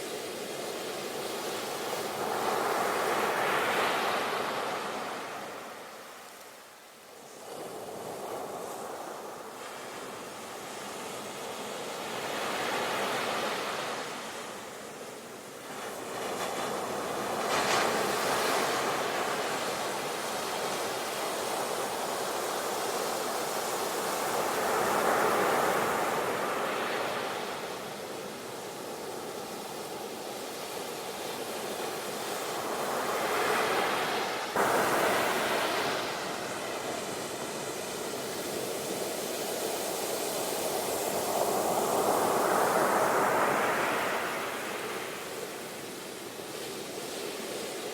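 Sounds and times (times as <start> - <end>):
sea waves breaking: 32.6 - 39.0.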